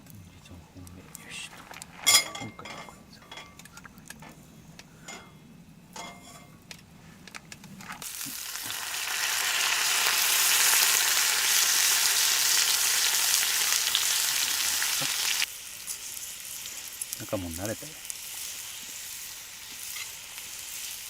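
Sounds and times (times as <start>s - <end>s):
meat sizzling in a frying pan: 8.0s - 21.0s.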